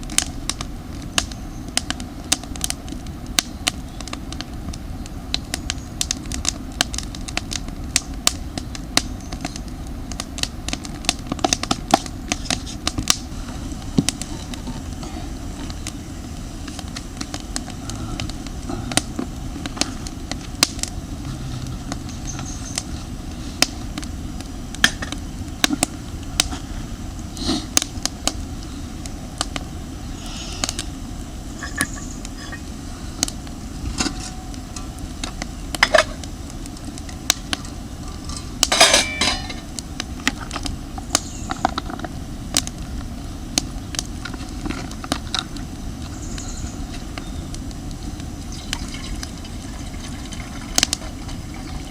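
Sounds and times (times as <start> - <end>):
steady low rumble: 0.0 - 51.9
metal cookware clinking: 38.2 - 39.6
metal ringing clatter: 38.3 - 39.6.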